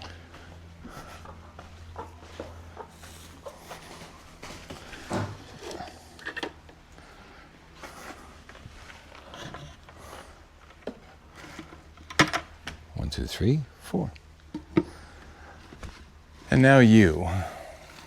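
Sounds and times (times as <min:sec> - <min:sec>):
hens clucking: 0:00.0 - 0:12.0
low steady hum: 0:00.0 - 0:18.0.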